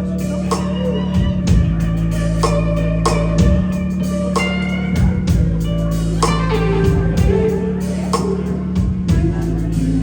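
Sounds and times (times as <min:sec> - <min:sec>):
distorted electric guitar: 0:00.0 - 0:10.0
heavy drum beat: 0:00.0 - 0:10.0.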